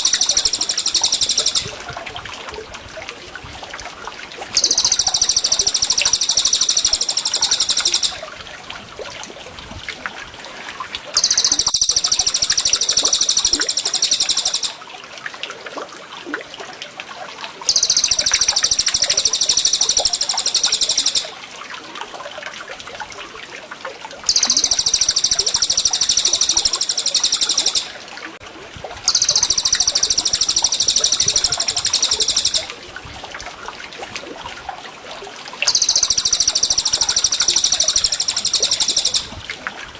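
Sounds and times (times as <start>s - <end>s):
songbird trilling: 0.0s - 1.8s, 4.6s - 8.2s, 11.2s - 14.8s, 17.7s - 21.3s, 24.3s - 27.9s, 29.1s - 32.7s, 35.7s - 39.4s
water trickling: 0.0s - 39.9s.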